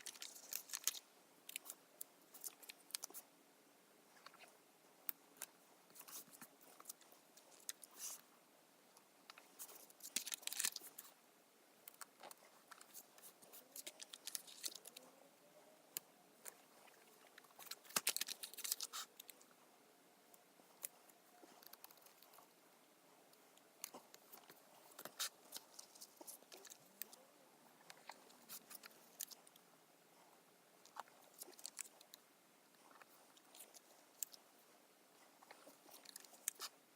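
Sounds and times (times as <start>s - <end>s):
paper sticker sheets crinkling: 0.0s - 3.2s, 9.6s - 11.1s, 12.2s - 15.0s, 17.4s - 19.4s, 23.8s - 27.2s, 31.3s - 32.1s
paper rustling: 17.6s - 19.3s.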